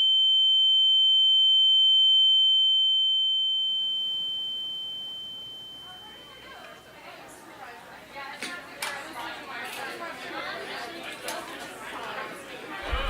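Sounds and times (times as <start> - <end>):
voices: 5.8 - 13.0.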